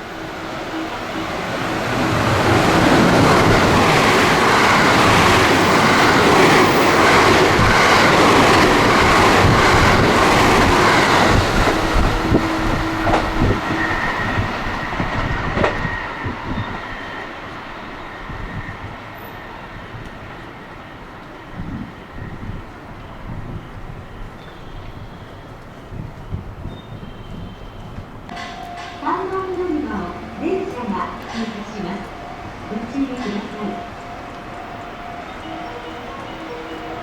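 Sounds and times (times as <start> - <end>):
train passing: 0.0 - 37.0
wheels clacking over rail joints: 0.9 - 15.9.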